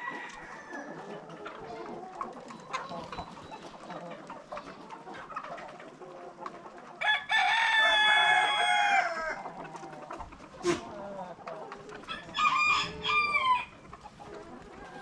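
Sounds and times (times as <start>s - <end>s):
chickens clucking: 0.0s - 15.0s
rooster crowing: 12.1s - 13.7s.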